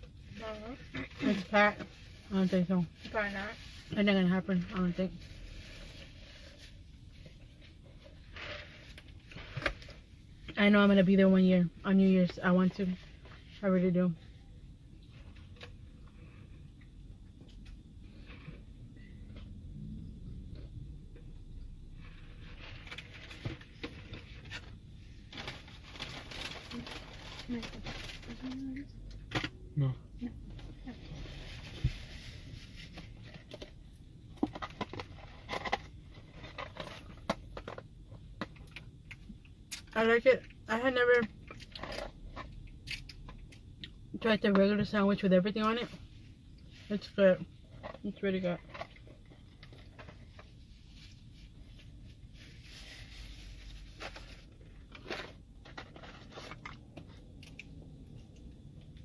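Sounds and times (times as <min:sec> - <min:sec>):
food wrapper crinkling: 0:25.3 - 0:28.6.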